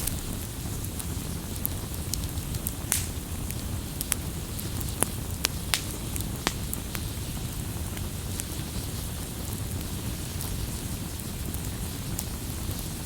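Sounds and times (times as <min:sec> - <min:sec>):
campfire pops and snaps: 0:00.0 - 0:08.6
fire rushing: 0:00.0 - 0:13.0.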